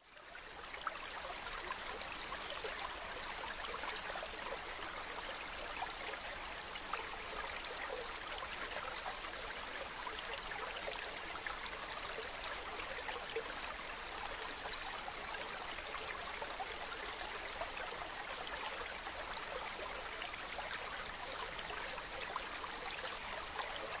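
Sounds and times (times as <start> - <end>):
stream running over rocks: 0.0 - 24.0.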